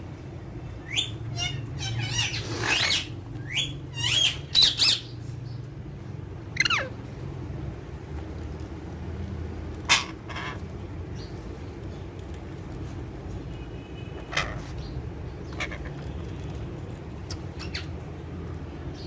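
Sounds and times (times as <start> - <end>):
parakeets harsh calls: 0.8 - 5.2, 6.5 - 7.0, 9.9 - 10.7, 14.2 - 16.0.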